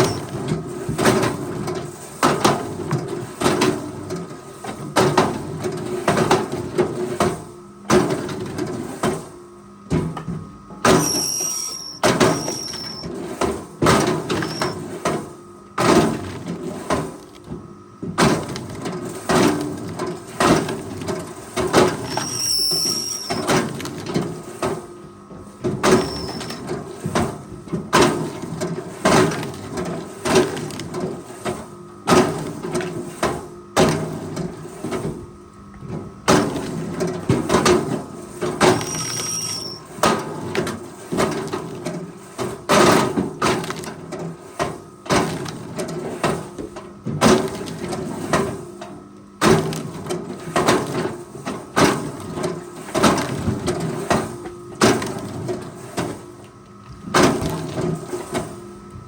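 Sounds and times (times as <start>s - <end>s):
forestry machine humming: 10.7s - 18.8s, 38.0s - 40.2s.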